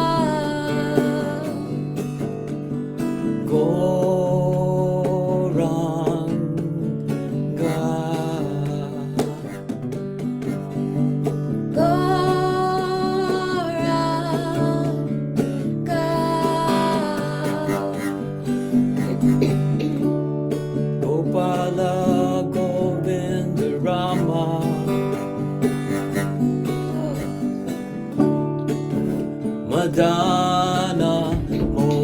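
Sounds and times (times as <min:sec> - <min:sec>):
person singing long notes: 0:00.0 - 0:01.8, 0:15.9 - 0:19.9.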